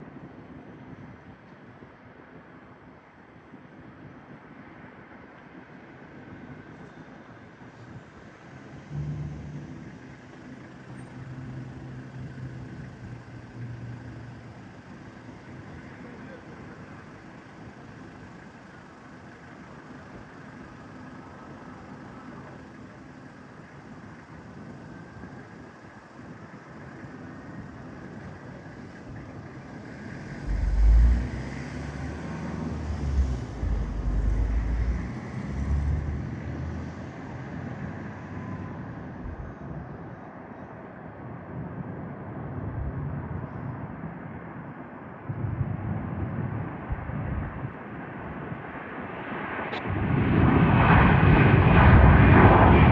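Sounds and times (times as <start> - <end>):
jet engines running: 6.0 - 40.5, 46.0 - 52.9
wind buffeting microphone: 27.6 - 35.7, 37.8 - 40.2, 45.2 - 48.8.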